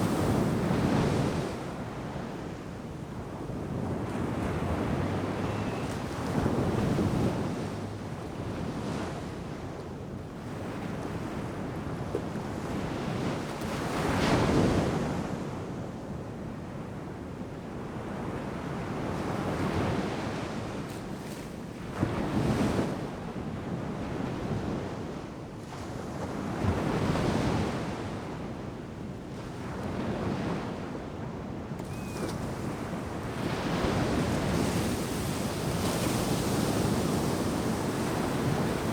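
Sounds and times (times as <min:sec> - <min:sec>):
ocean surf breaking on beach: 0:31.8 - 0:38.9.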